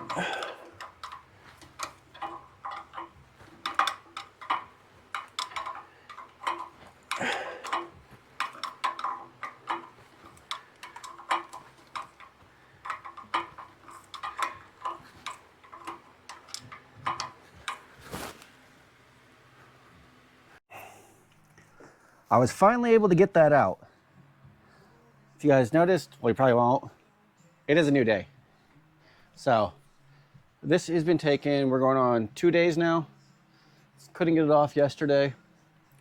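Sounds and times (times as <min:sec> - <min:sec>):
hand tools clinking on metal: 0:00.0 - 0:18.5.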